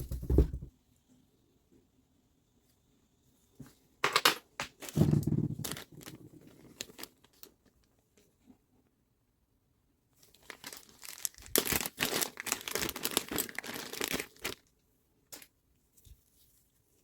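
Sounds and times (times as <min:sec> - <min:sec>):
crinkling and rustling handling: 0:03.6 - 0:09.0, 0:10.1 - 0:17.0.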